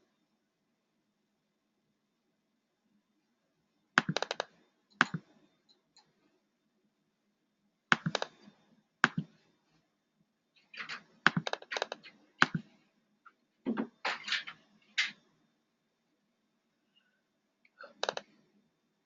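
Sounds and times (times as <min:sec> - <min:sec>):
sharp clicks and taps: 0:04.0 - 0:06.1, 0:07.9 - 0:08.4, 0:09.0 - 0:09.3, 0:10.8 - 0:12.7.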